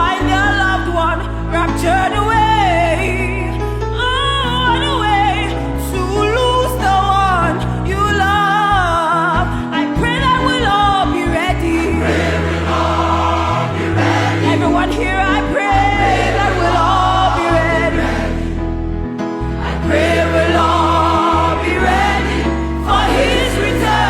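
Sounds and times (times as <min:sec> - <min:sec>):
sustained bass line: 0:07.2 - 0:24.0
choir singing with vibrato: 0:11.8 - 0:24.0.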